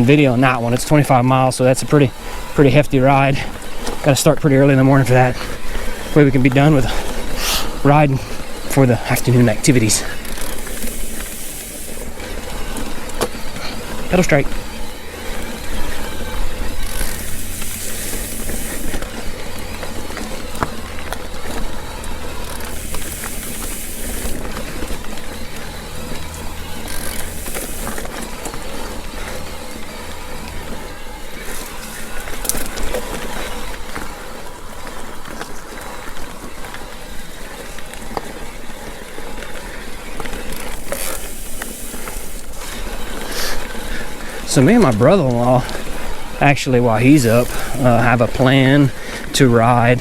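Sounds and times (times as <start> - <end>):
bike clicks and rattles: 0.0 - 50.0
bike tyres rolling on dirt: 0.0 - 50.0
short bursts of hiss: 10.5 - 12.1, 17.1 - 19.0, 22.7 - 24.4, 27.1 - 28.0, 40.8 - 42.7.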